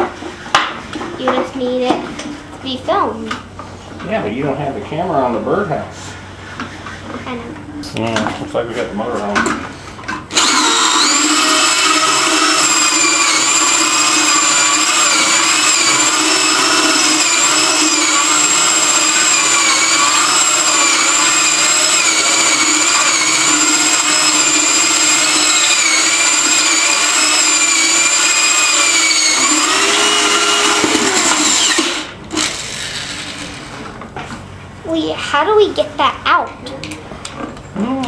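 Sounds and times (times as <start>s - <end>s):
electric drill boring wood: 10.3s - 33.9s.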